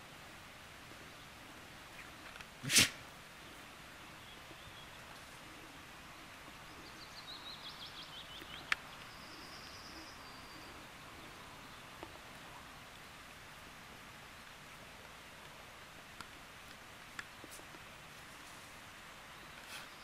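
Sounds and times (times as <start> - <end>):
songbird singing: 0.3 - 2.3, 3.2 - 13.2, 19.0 - 20.0.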